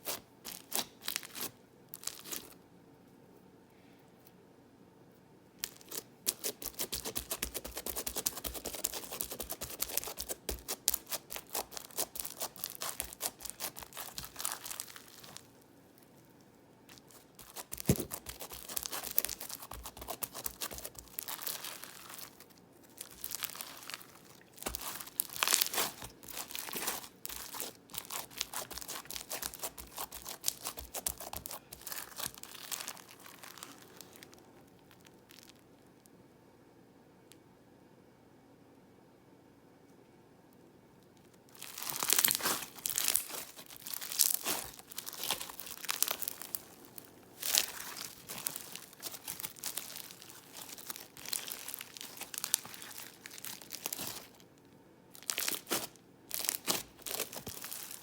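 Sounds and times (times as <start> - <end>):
slime crackling and popping: 5.6 - 15.5, 16.9 - 35.6, 41.5 - 54.4, 55.2 - 58.0.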